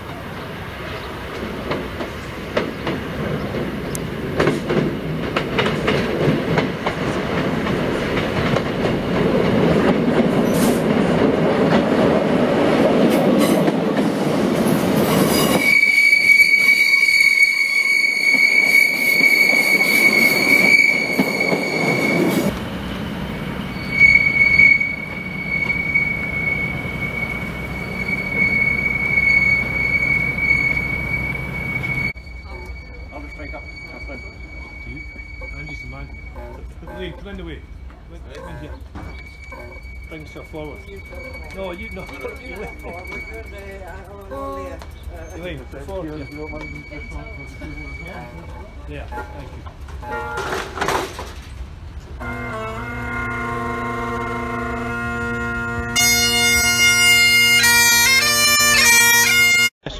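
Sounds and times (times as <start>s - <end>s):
train rumble and wheel clatter: 0.0s - 59.4s
high-pitched wheel squeal: 15.0s - 50.6s.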